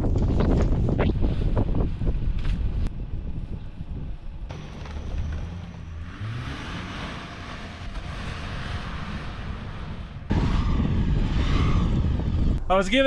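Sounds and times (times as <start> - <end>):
car engine under throttle: 3.8 - 12.6
steady rushing noise: 6.2 - 13.0.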